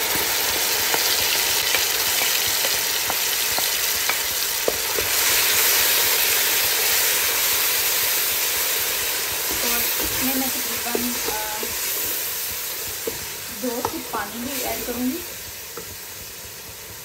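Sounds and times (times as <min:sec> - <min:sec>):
oil sizzling in a wok: 0:00.0 - 0:17.0.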